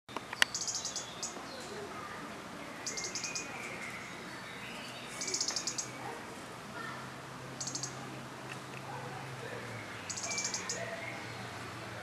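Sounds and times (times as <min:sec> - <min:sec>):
songbird fast trill: 0:00.5 - 0:01.4, 0:02.8 - 0:04.0, 0:04.6 - 0:06.0, 0:07.6 - 0:08.0, 0:10.0 - 0:11.2
thin whistled bird calls: 0:02.8 - 0:04.0, 0:04.7 - 0:06.0, 0:07.6 - 0:08.0, 0:10.1 - 0:11.2.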